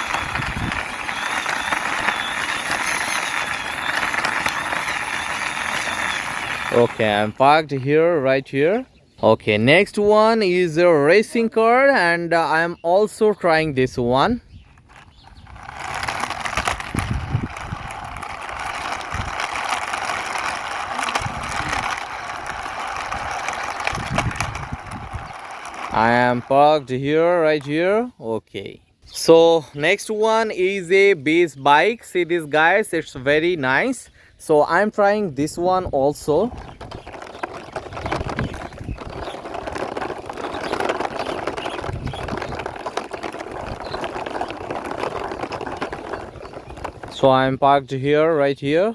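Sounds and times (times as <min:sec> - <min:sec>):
toy car wheels rattling on wall: 0:00.0 - 0:07.4, 0:13.9 - 0:27.8, 0:34.9 - 0:47.4.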